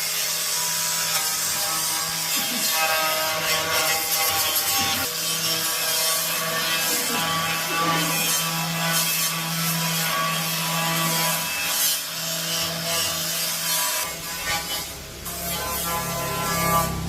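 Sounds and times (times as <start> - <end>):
power tool motor hum: 0.0 - 17.0
rasping scraping on surface: 0.0 - 17.0.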